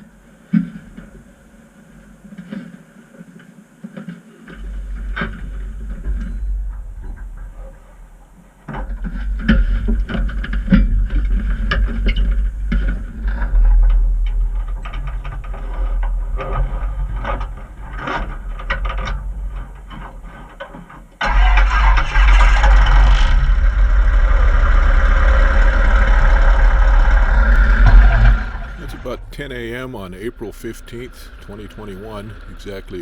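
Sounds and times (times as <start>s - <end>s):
aircraft engine running: 27.6s - 33.0s.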